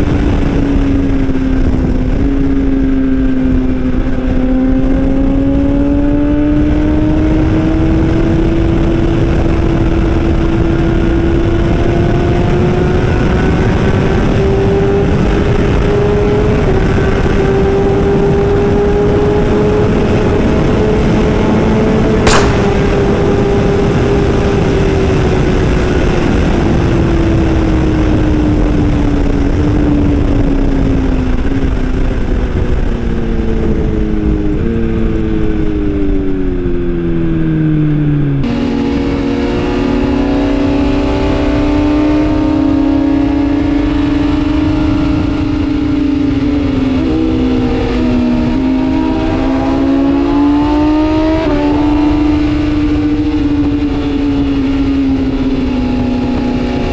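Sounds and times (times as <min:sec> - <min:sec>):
motorcycle engine at high revs: 0:32.6 - 0:56.9.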